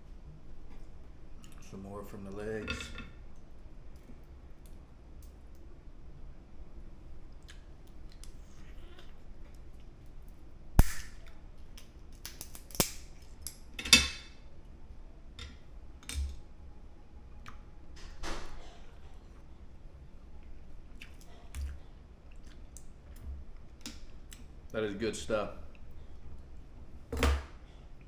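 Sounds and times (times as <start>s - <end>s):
crab shell cracking: 10.8s - 13.6s.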